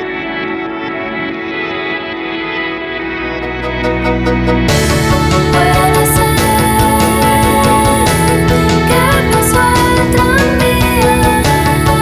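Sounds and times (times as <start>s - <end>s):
upbeat instrumental music: 1.6s - 12.0s.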